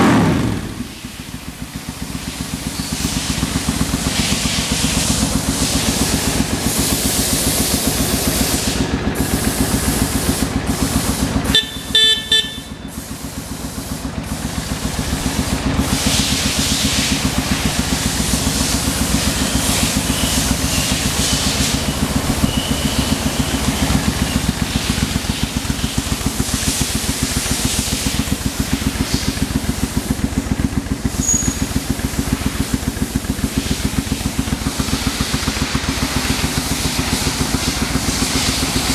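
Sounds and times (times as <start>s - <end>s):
motorcycle engine running: 0.0s - 38.9s
motorcycle horn: 11.0s - 14.4s, 19.0s - 26.3s, 31.0s - 31.9s.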